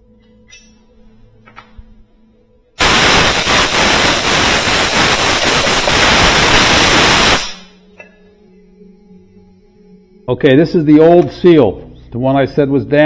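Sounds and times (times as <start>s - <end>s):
loud steady hiss: 2.8s - 7.8s.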